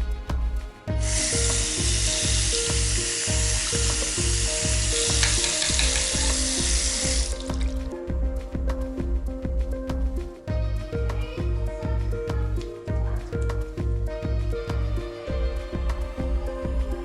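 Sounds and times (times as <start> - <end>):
background music with steady beat: 0.0 - 17.0
loud even hiss: 0.9 - 8.0.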